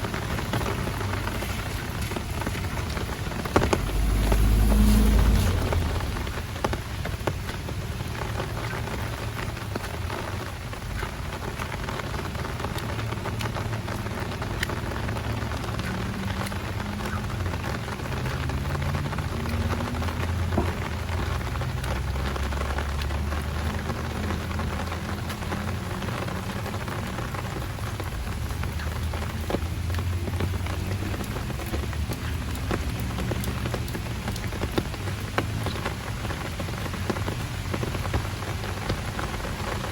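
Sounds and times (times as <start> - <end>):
low rumble: 0.0 - 11.0
heavy rain hiss: 0.0 - 39.9
raindrops ticking close by: 0.0 - 39.9.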